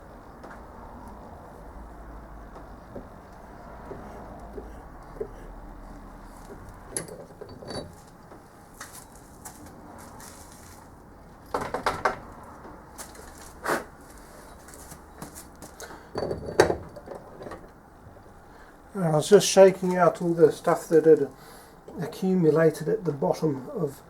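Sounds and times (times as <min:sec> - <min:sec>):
light metallic clinks and knocks: 0:06.4 - 0:08.4, 0:15.8 - 0:18.3.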